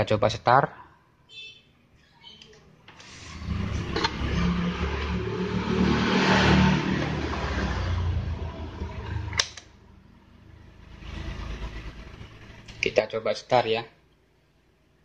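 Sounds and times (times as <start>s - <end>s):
vehicle engine passing by: 3.0s - 12.9s
sharp click: 9.4s - 9.7s.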